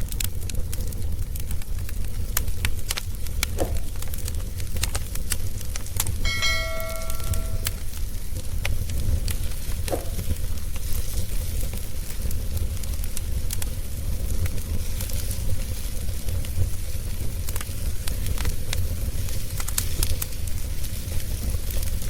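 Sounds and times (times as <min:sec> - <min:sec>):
wood fire crackling: 0:00.0 - 0:22.0
metallic ring: 0:06.3 - 0:07.8.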